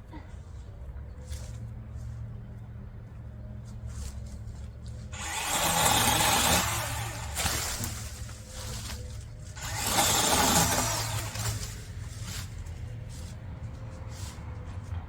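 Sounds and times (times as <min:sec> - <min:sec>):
chainsaw revving: 0:05.2 - 0:08.8, 0:09.6 - 0:11.8.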